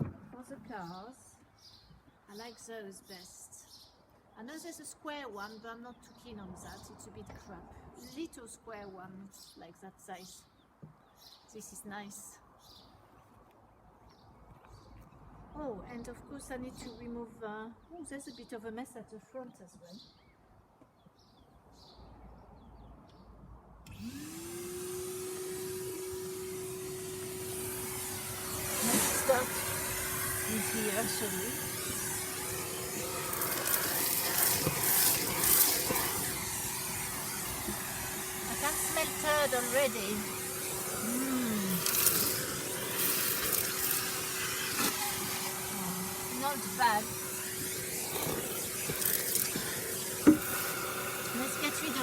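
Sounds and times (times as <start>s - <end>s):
vacuum cleaner motor whine: 23.9s - 52.0s.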